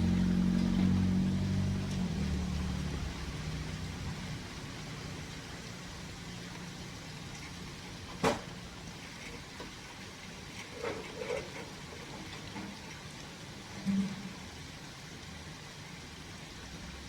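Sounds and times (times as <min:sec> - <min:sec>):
passing vehicle engine hum: 0:00.0 - 0:06.5.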